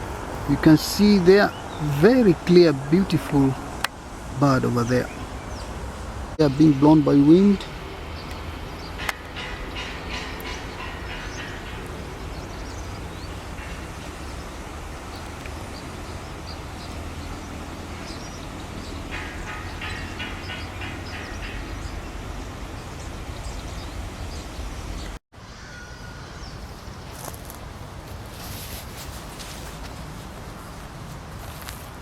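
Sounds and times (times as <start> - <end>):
wind buffeting microphone: 0.0 - 25.2
small birds chirping: 0.7 - 27.6.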